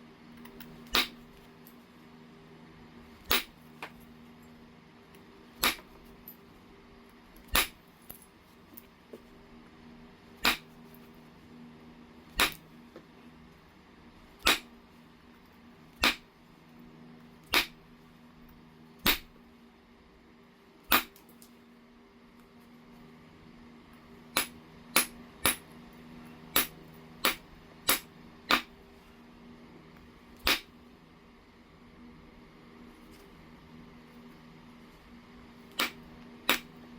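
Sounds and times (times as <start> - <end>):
faint steady hum: 0.0 - 36.9
knapping tool clicking on stone: 7.5 - 7.8, 12.4 - 12.6, 35.7 - 36.8.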